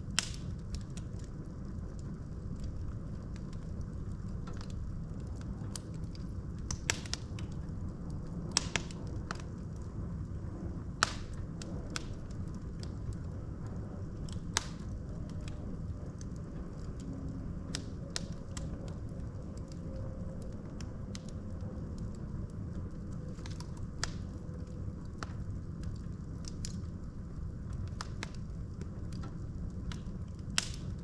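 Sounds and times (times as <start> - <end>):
burning logs crackling and popping: 0.0 - 31.0
low rumble of flames: 0.0 - 31.0.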